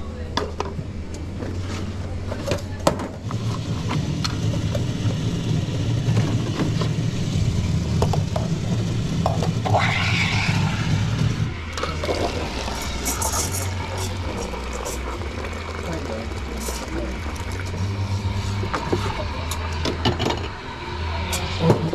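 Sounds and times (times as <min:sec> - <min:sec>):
espresso machine pump hum: 0:03.3 - 0:21.9
cups and utensils clinking: 0:11.8 - 0:20.6.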